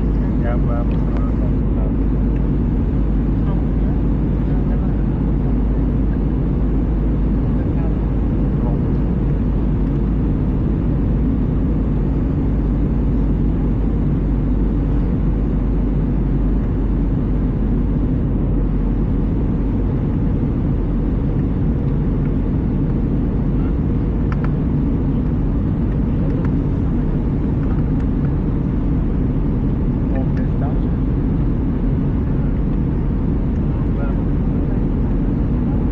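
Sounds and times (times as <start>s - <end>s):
airplane cabin engine rumble: 0.0s - 35.9s.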